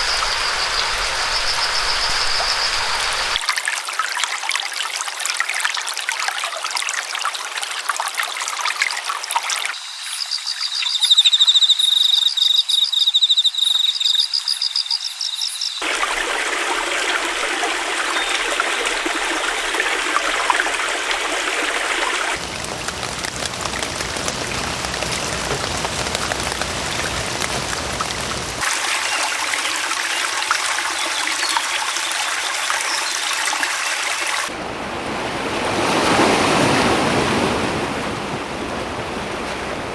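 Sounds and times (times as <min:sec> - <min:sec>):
trickling stream: 0:00.0 - 0:34.6
high rapid chirping: 0:09.8 - 0:15.8.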